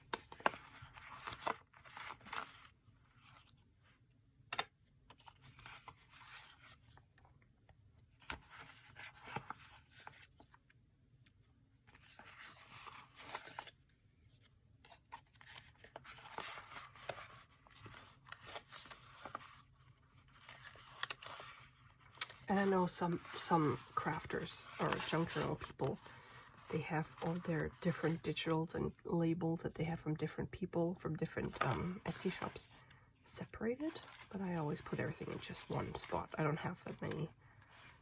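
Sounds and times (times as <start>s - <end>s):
paper and card rustling: 0.0s - 7.2s, 8.0s - 29.1s, 31.2s - 38.0s.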